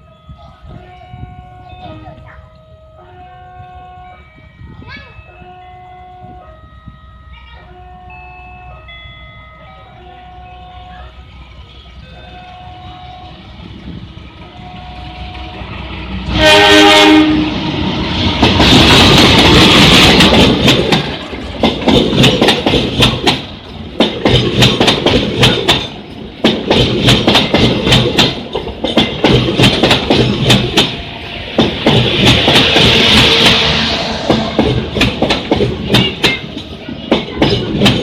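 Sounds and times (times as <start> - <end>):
locomotive horn: 14.4 - 17.8, 32.7 - 35.0
train wheels clacking over rail joints: 15.4 - 38.0.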